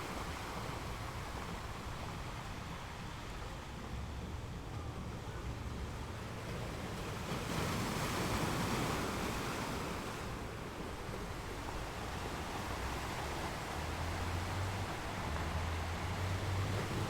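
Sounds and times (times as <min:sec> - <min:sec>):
ocean waves washing ashore: 0:00.0 - 0:17.0.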